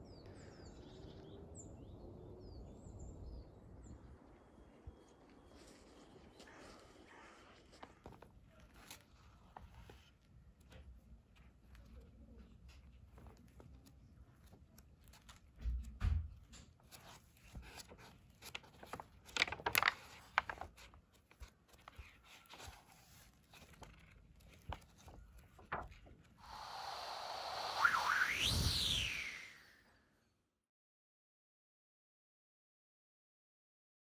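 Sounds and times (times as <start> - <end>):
paper rustling: 5.6 - 26.6
rising whoosh: 26.4 - 29.7.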